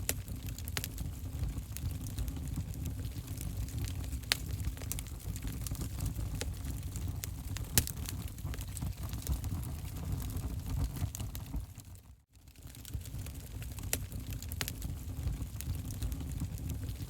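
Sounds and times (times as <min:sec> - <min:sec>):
fire crackling and popping: 0:00.0 - 0:17.0
wood fire rumbling: 0:00.0 - 0:17.0.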